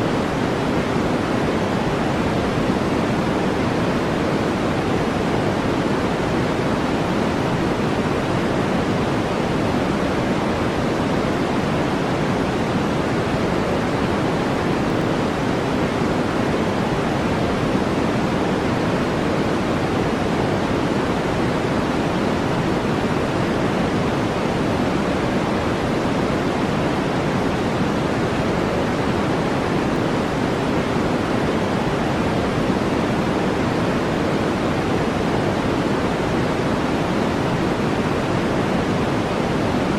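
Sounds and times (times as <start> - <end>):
steady brown noise hiss: 0.0 - 39.9.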